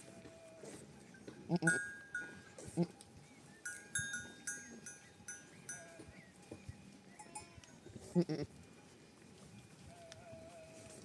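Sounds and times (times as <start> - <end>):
animal bells clanking: 1.1 - 2.7, 3.6 - 6.3, 7.1 - 7.8
loud animal bleat: 7.2 - 8.5.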